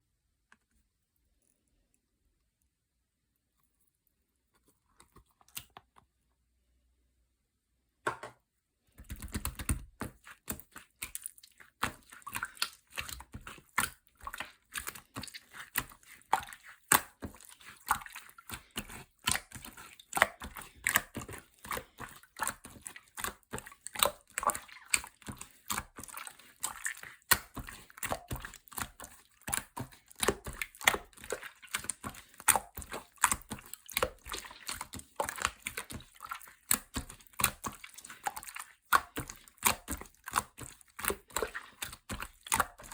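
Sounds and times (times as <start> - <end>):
slime squelching with wet clicks: 4.9 - 6.1, 8.9 - 42.9.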